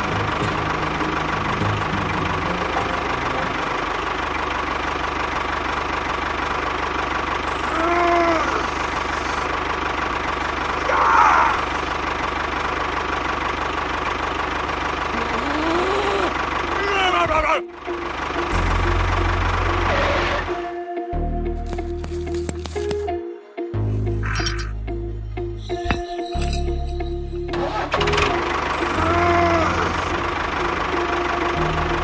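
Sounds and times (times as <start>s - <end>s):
small motor running: 13.6s - 16.8s.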